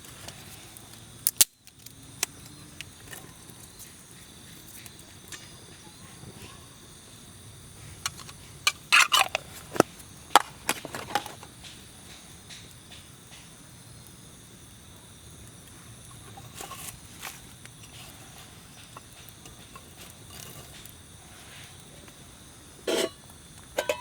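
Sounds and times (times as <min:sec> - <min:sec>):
dry wood cracking: 0:00.7 - 0:03.0.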